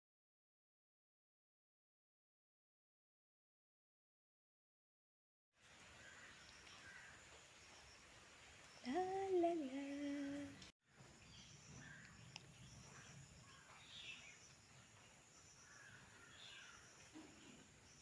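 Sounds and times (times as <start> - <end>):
distant bird chirps: 6.0 - 18.0.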